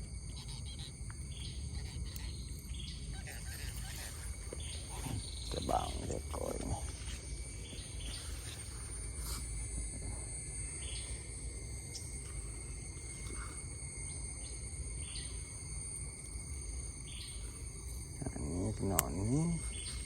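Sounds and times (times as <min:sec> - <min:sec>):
insects trilling: 0:00.0 - 0:20.0
short insect chirps: 0:00.0 - 0:20.0.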